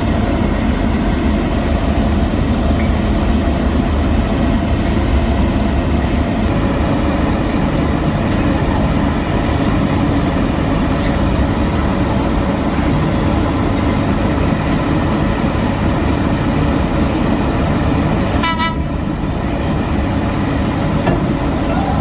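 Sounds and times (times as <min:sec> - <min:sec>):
heavy machinery engines rumbling: 0:00.0 - 0:22.0
short horn toot: 0:18.4 - 0:18.9.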